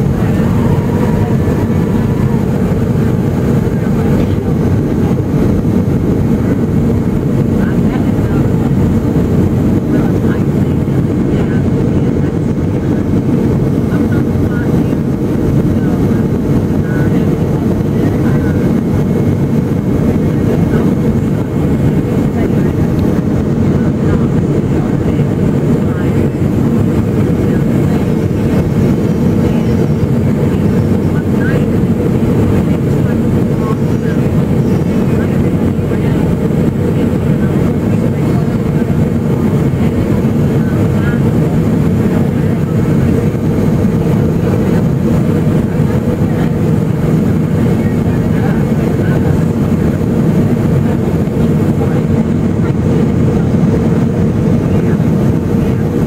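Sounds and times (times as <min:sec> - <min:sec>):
rushing air: 0:00.0 - 0:37.9
airliner cabin engine roar: 0:00.0 - 0:56.0
faint passenger voices: 0:00.0 - 0:56.0.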